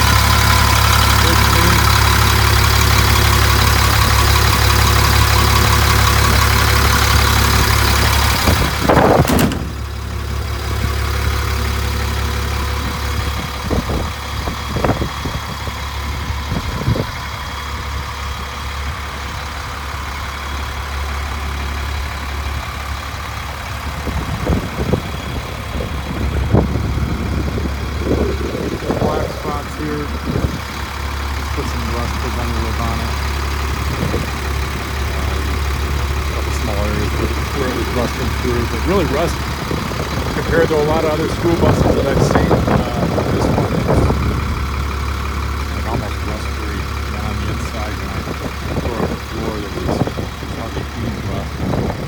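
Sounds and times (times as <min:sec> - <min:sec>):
diesel bus engine idling: 0:00.0 - 0:52.0
loud clatter: 0:06.3 - 0:12.4
short knocks: 0:08.2 - 0:10.1.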